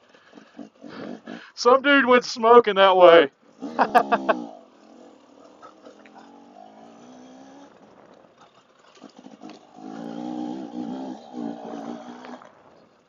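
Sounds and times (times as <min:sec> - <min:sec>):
dirt bike engine revving: 0:03.4 - 0:13.0.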